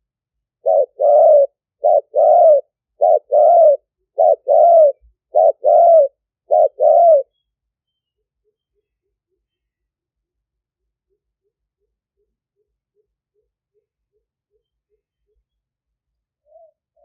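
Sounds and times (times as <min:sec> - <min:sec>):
dove cooing: 0:00.6 - 0:07.3, 0:16.4 - 0:17.0.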